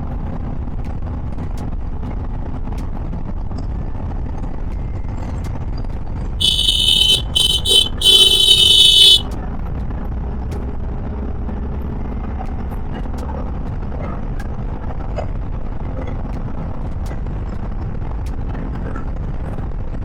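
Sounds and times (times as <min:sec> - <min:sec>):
vehicle horn honking: 0:06.4 - 0:09.3.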